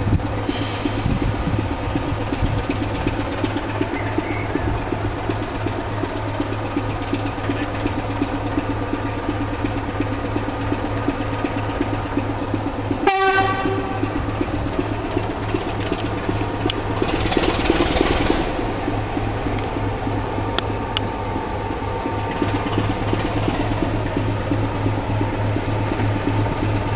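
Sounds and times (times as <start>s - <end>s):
locomotive humming: 0.0s - 26.9s
hiss burst: 0.4s - 4.0s
horn blast: 13.0s - 14.3s.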